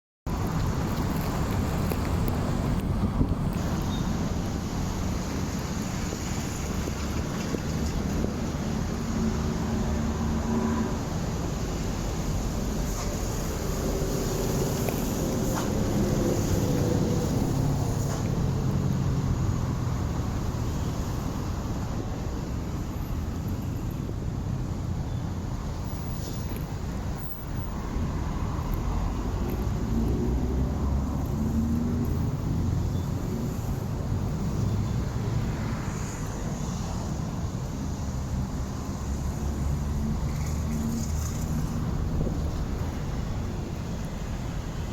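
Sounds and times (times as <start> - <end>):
wind rumbling on microphone: 0.3 - 44.9
wind buffeting microphone: 40.0 - 44.4.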